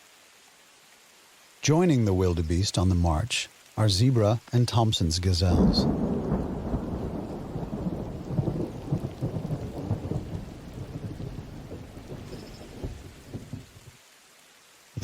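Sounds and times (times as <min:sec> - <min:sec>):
rain: 0:00.0 - 0:15.0
rolling thunder: 0:05.6 - 0:13.9.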